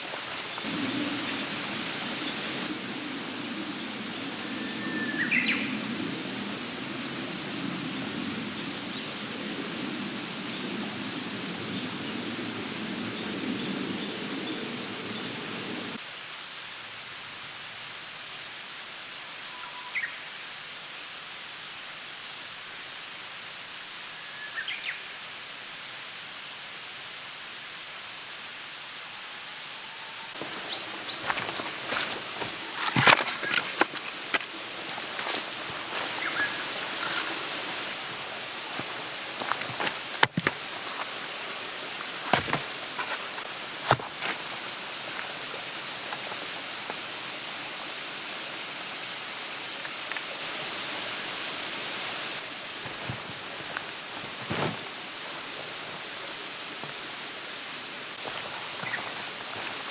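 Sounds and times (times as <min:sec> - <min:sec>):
steady outdoor rushing noise: 0:30.3 - 0:59.9.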